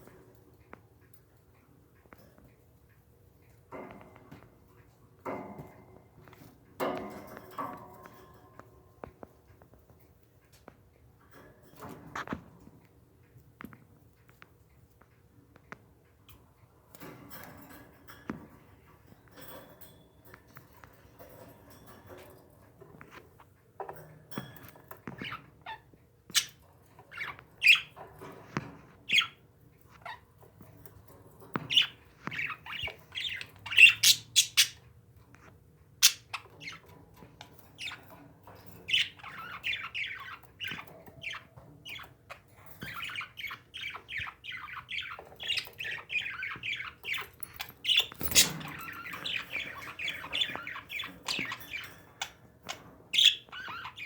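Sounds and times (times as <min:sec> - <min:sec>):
parakeets chirping and squawking: 0:24.9 - 0:34.8, 0:36.0 - 0:54.0.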